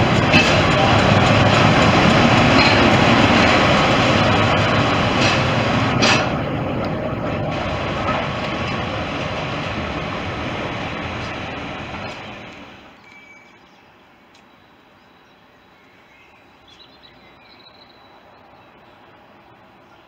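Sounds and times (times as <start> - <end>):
train coaches rumbling past: 0.0 - 20.0
faint bird chirps: 13.0 - 19.1.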